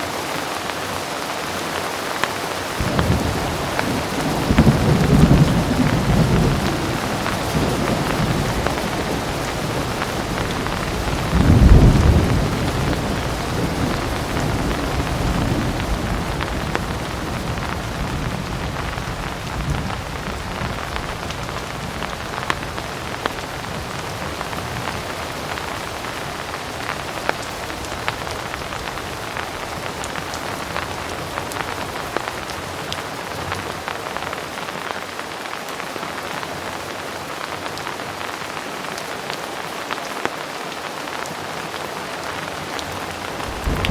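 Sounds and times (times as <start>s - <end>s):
heavy rain falling: 0.0s - 43.9s
thunderclap rumbling: 2.8s - 27.1s, 42.8s - 43.9s
sharp raindrop hits: 42.8s - 43.9s.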